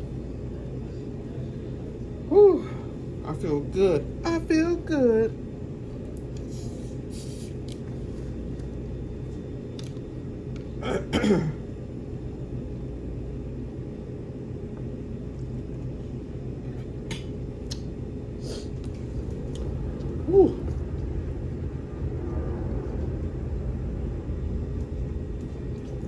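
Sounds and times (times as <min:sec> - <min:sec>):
low room hum: 0:00.0 - 0:26.0
woman sighing: 0:02.4 - 0:02.9.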